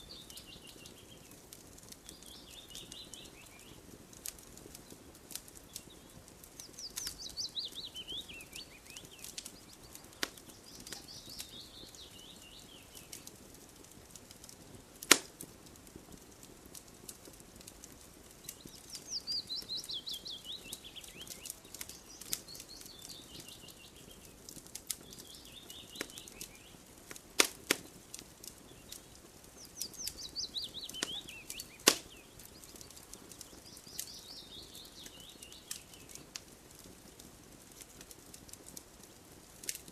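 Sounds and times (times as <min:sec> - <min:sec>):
songbird chirping: 0:00.0 - 0:13.4, 0:17.8 - 0:36.5
campfire crackling: 0:00.0 - 0:39.9
loud sharp pops: 0:15.0 - 0:15.5, 0:24.6 - 0:29.1, 0:29.9 - 0:34.2.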